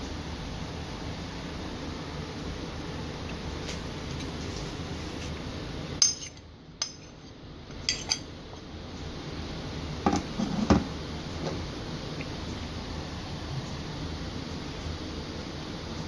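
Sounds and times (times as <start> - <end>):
steady background hiss: 0.0 - 16.0
utensils and dishes clinking: 6.0 - 7.2, 7.8 - 8.3.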